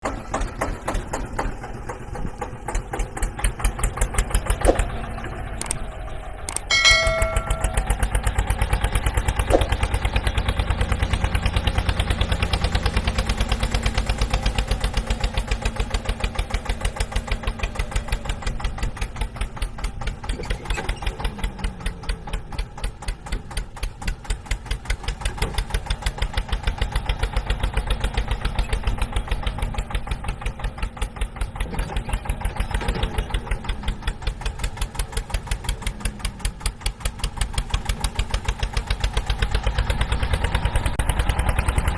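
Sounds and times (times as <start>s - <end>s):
tractor engine chugging: 0.0s - 41.9s.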